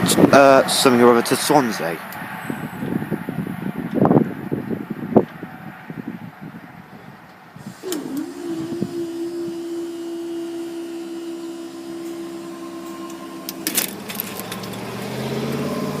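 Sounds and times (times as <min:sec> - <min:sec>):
barrier motor clicks: 0:07.6 - 0:16.0
barrier motor humming: 0:07.6 - 0:16.0
vehicle engine pulling away: 0:07.6 - 0:16.0.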